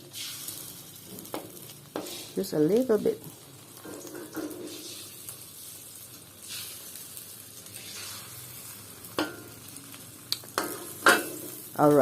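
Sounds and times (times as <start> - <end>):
omelette sizzling in oil: 0.0 - 12.0.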